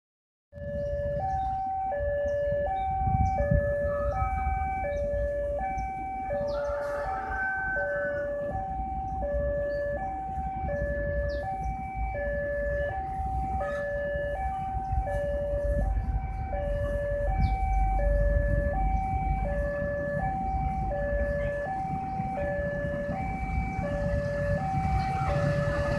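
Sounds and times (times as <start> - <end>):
level crossing two-tone alarm: 0.6 - 25.9
low rumble: 14.6 - 25.9.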